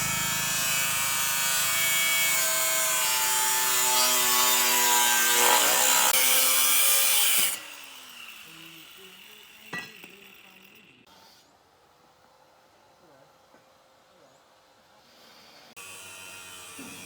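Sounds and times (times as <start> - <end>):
power tool grinding: 0.0 - 11.1, 15.7 - 17.0.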